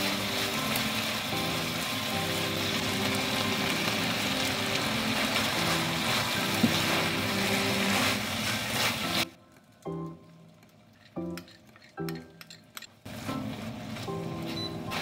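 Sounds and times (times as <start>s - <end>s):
meat sizzling in a frying pan: 0.0s - 9.3s
spatula stirring food: 0.0s - 9.3s.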